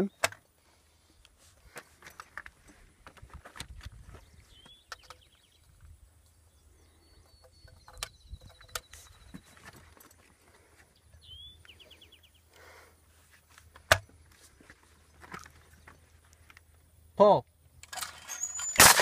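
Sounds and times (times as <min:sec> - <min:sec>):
small bird calling: 0:10.6 - 0:13.0.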